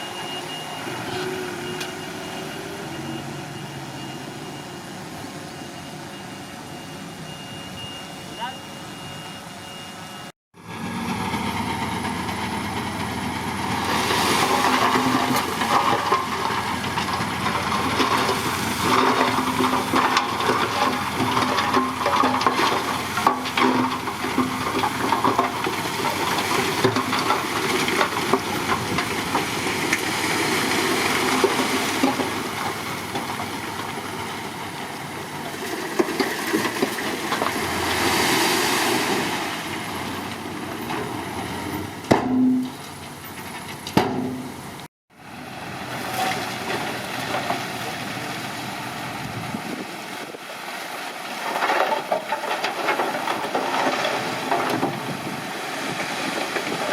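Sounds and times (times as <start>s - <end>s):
diesel engine running: 10.6s - 36.0s.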